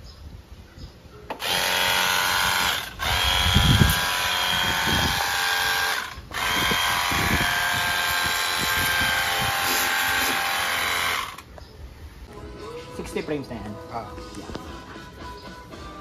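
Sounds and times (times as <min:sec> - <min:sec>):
power tool whining: 0:01.3 - 0:11.5.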